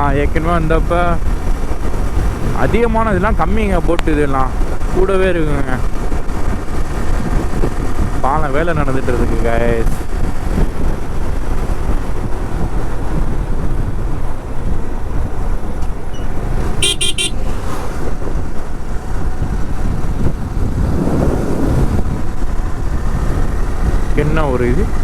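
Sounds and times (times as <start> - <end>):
wind and road noise: 0.0 - 25.0
motorcycle horn toots: 16.8 - 17.6.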